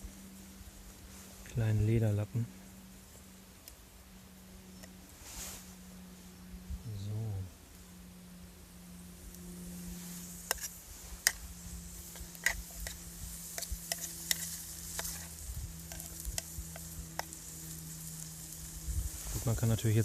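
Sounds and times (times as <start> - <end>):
food sizzling in hot oil: 9.9 - 20.0.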